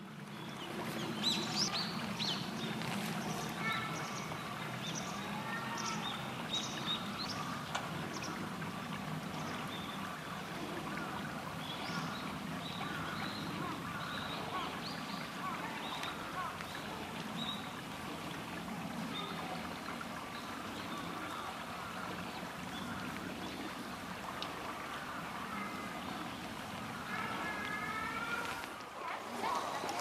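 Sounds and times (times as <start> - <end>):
river water running: 0.0 - 30.0.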